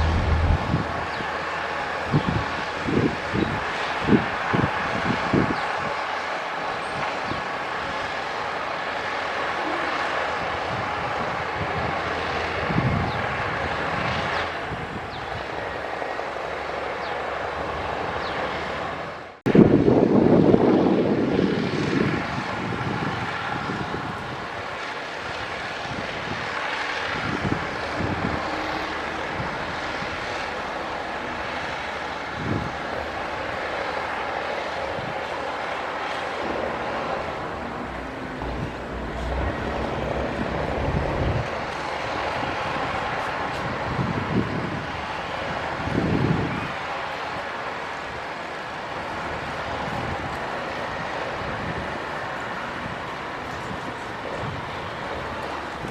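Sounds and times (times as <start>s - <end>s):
deep engine rumble: 0.0s - 3.3s, 26.9s - 43.5s
heavy machinery diesel engines: 0.0s - 55.9s.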